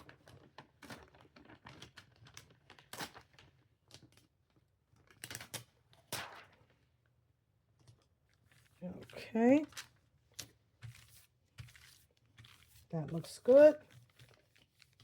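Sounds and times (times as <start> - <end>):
transfer tape crinkling: 9.1 - 15.0.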